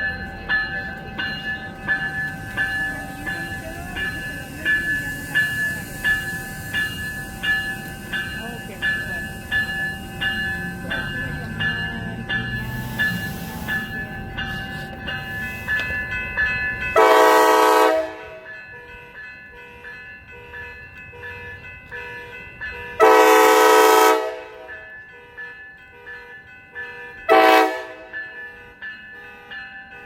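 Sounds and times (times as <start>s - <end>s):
bell ringing: 0.0s - 23.6s
train horn blasts: 17.0s - 18.5s, 23.0s - 24.8s, 27.3s - 28.2s.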